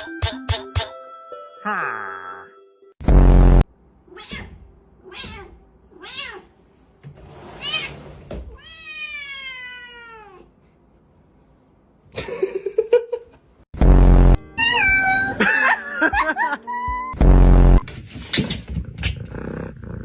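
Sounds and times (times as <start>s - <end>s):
cat meowing: 4.1s - 6.5s, 8.6s - 10.5s, 14.6s - 15.4s.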